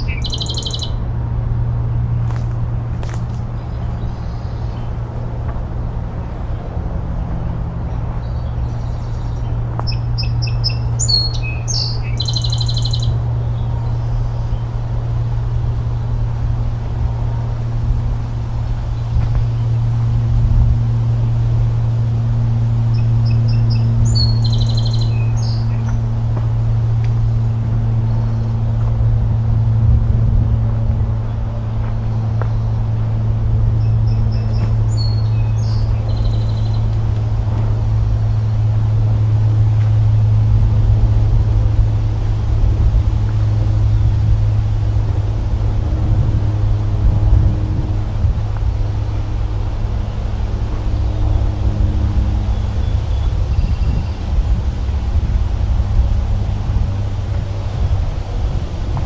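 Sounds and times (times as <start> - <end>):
songbird singing with buzzy trill: 0.0 - 1.0, 7.9 - 15.4, 22.8 - 26.1, 33.7 - 37.3, 51.3 - 54.6
steady low hum: 0.0 - 59.0.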